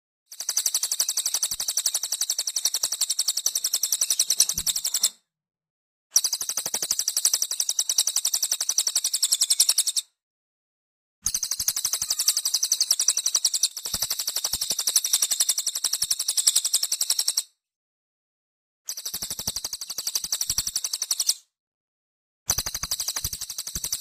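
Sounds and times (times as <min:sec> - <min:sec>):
rapid high bird chirps: 0:00.3 - 0:05.2, 0:06.2 - 0:10.1, 0:11.2 - 0:17.5, 0:18.9 - 0:21.5, 0:22.5 - 0:24.0.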